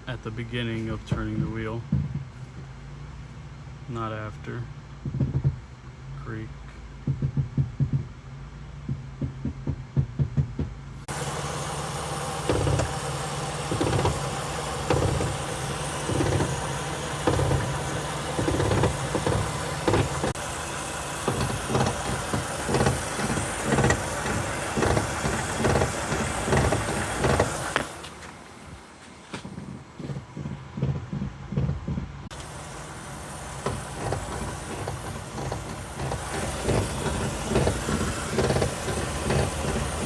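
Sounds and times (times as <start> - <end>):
car engine running: 0.0 - 40.0
suspension creaking: 8.9 - 40.0.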